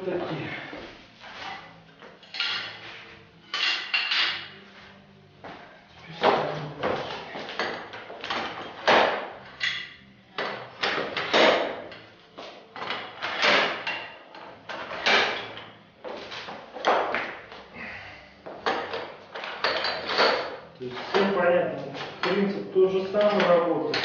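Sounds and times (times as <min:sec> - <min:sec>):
metal parts clanking and sliding: 0:18.7 - 0:21.3.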